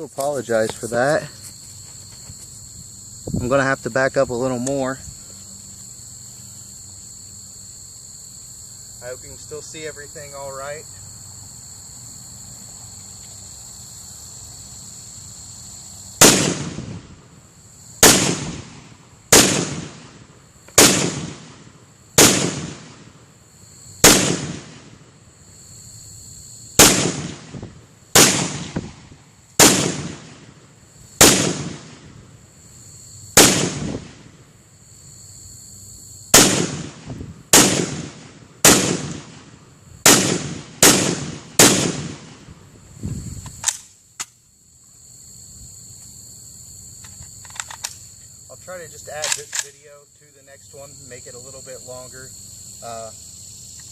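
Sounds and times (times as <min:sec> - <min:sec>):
crickets chirring: 0:00.0 - 0:53.9
pistol shots echoing: 0:16.2 - 0:16.8, 0:18.0 - 0:20.2, 0:20.8 - 0:21.6, 0:22.2 - 0:23.0, 0:24.0 - 0:24.9, 0:26.8 - 0:27.5, 0:28.2 - 0:28.8, 0:29.6 - 0:30.5, 0:31.2 - 0:32.0, 0:33.4 - 0:33.9, 0:36.4 - 0:39.5, 0:40.1 - 0:42.4.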